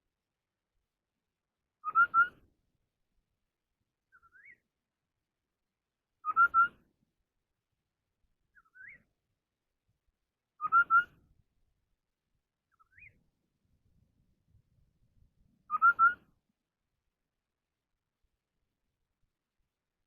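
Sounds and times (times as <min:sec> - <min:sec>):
songbird whistled phrases: 0:01.8 - 0:02.4, 0:04.1 - 0:04.6, 0:06.2 - 0:06.8, 0:08.6 - 0:09.0, 0:10.6 - 0:11.2, 0:12.7 - 0:13.2, 0:15.7 - 0:16.3.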